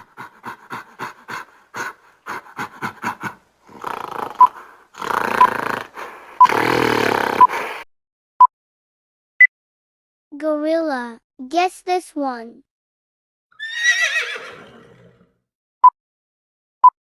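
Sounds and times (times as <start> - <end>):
gorilla grunting roars: 0.0 - 7.4
gorilla short sharp pulses: 3.7 - 7.8.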